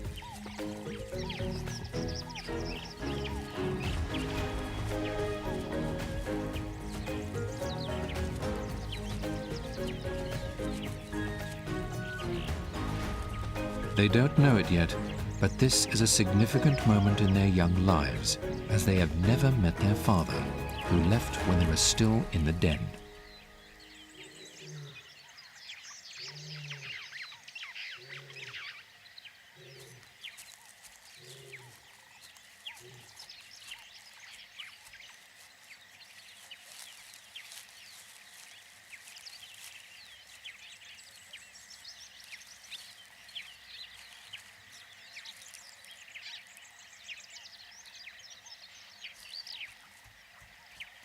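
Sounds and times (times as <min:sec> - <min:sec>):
birds chirping: 0:00.0 - 0:51.0.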